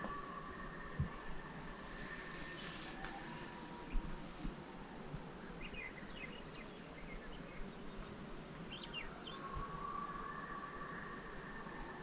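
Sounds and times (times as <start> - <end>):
small birds chirping: 5.6 - 9.4.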